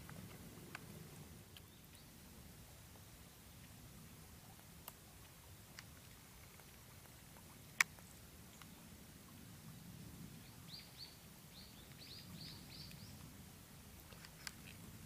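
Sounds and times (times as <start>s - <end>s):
faint outdoor background: 0.0s - 15.0s
small bird chirping: 10.4s - 13.3s.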